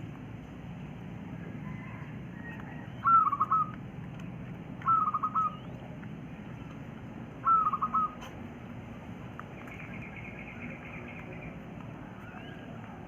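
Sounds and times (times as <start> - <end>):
quail trilled calls: 1.8 - 3.8, 4.8 - 5.8, 7.4 - 8.4.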